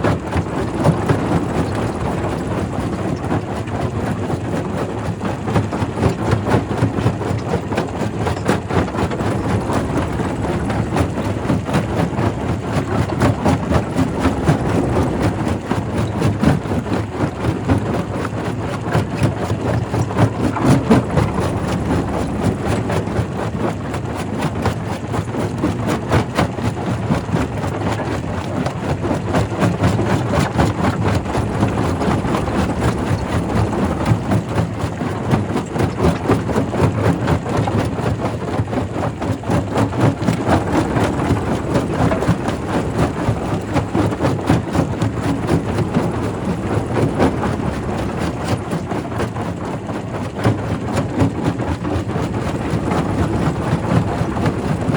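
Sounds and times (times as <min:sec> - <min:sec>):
rock crusher mechanical drone: 0:08.3 - 0:16.8, 0:19.4 - 0:24.6, 0:29.4 - 0:37.0, 0:40.2 - 0:49.2.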